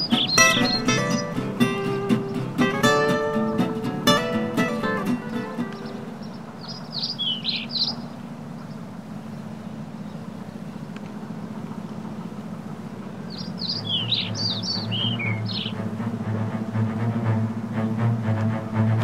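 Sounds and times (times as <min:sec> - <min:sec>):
small bird chirping: 0:00.0 - 0:15.8
steady low hum: 0:00.0 - 0:19.0.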